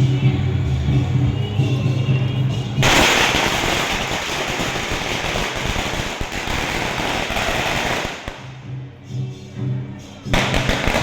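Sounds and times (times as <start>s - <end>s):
firecrackers crackling: 2.8s - 8.7s, 10.3s - 11.0s.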